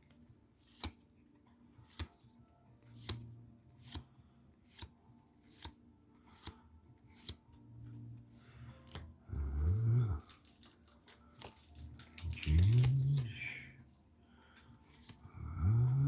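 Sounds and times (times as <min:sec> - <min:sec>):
cards snapping while flipped: 0:00.0 - 0:07.7, 0:08.8 - 0:09.6, 0:10.2 - 0:13.3, 0:14.6 - 0:15.3.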